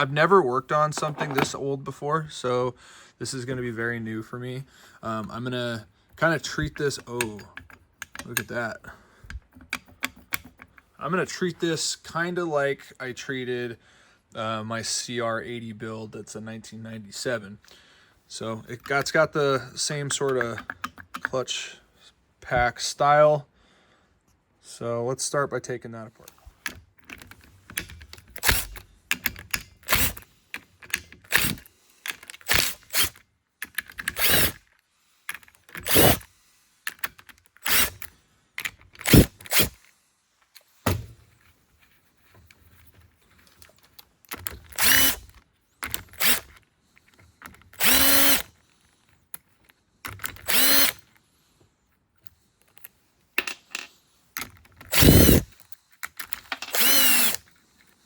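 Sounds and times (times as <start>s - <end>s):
small parts clattering: 0.8s - 1.6s, 52.6s - 58.0s
cordless drill whirring: 28.4s - 28.8s, 29.8s - 30.2s, 31.3s - 31.7s, 32.4s - 33.2s, 34.1s - 34.6s, 35.8s - 36.3s, 37.6s - 38.1s, 39.0s - 39.8s, 44.6s - 45.4s, 46.0s - 46.6s, 47.7s - 48.6s, 50.3s - 51.1s, 54.9s - 55.6s, 56.6s - 57.6s.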